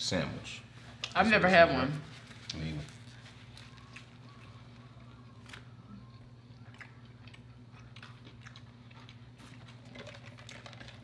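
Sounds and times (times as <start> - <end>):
steady low hum: 0.0 - 11.0
close-up chewing: 2.3 - 11.0.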